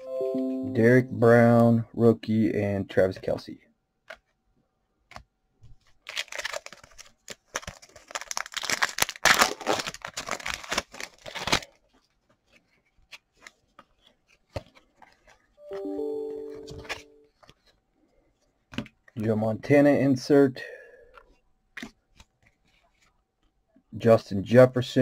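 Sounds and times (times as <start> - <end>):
wrapper tearing and crinkling: 5.9 - 13.0.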